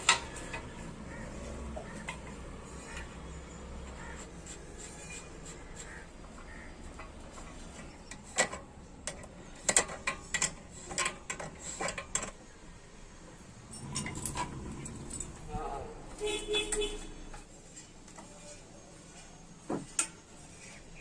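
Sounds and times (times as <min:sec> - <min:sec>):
metal clicks and knocks: 0:01.7 - 0:04.0, 0:06.3 - 0:12.5, 0:13.6 - 0:15.5.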